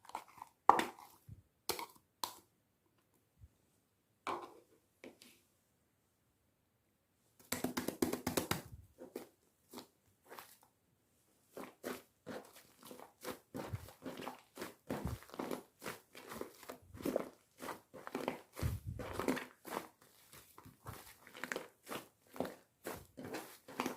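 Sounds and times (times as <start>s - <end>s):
slime squishing: 11.5s - 23.9s.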